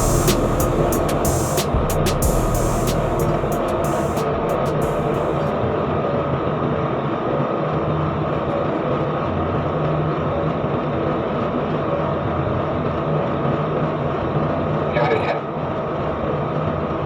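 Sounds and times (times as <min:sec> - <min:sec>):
boat engine droning: 0:00.0 - 0:09.0.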